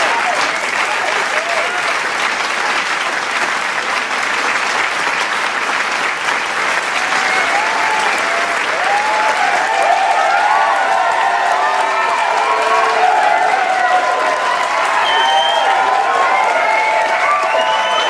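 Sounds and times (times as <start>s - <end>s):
crowd cheering and shouting: 0.0s - 2.1s, 6.8s - 18.0s
crowd applauding: 0.0s - 18.0s.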